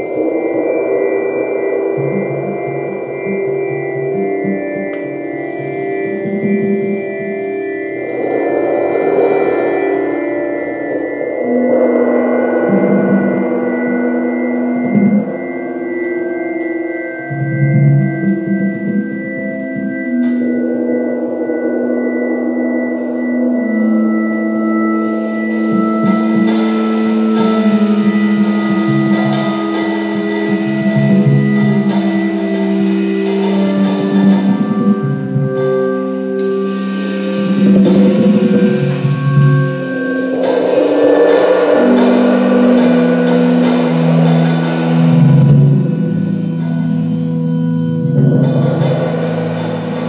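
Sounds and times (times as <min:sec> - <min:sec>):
drums with cymbals: 0:24.7 - 0:50.0
organ chords: 0:26.3 - 0:50.0.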